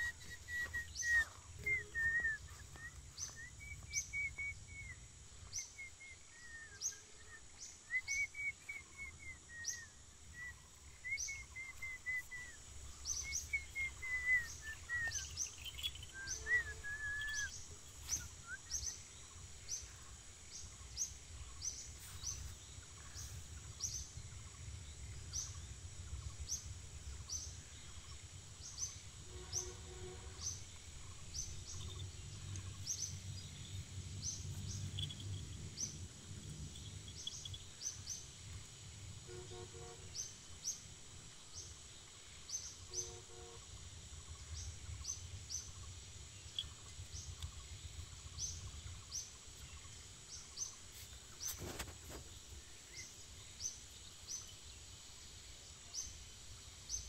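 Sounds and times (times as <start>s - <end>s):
bird warbling call: 0.0s - 4.8s, 5.8s - 19.0s
bird chirping: 0.0s - 57.0s.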